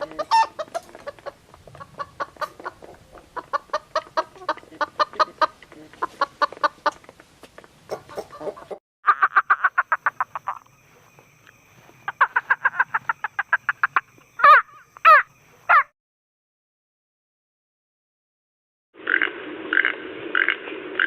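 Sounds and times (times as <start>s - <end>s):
bird harsh calls: 11.7s - 15.9s.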